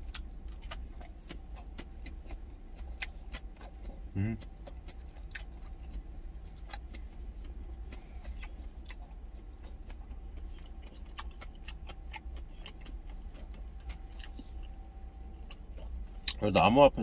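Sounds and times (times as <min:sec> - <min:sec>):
man chewing food: 0:00.0 - 0:16.8
steady low rumble: 0:00.0 - 0:17.0.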